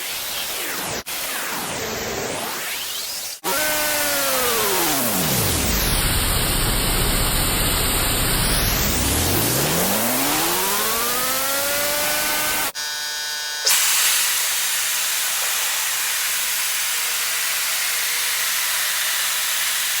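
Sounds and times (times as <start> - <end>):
motor whine: 3.4 - 18.7
high-pressure water spray: 13.7 - 20.0.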